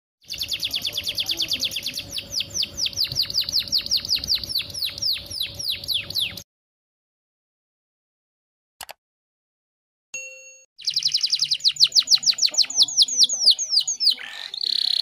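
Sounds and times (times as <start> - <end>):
canary trilling and whistling: 0.2 - 6.4, 10.8 - 15.0.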